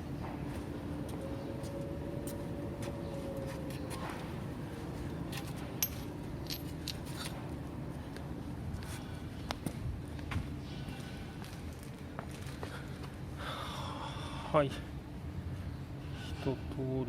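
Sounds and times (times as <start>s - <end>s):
steady low hum: 0.0s - 17.0s
metal tools clinking: 5.8s - 7.3s.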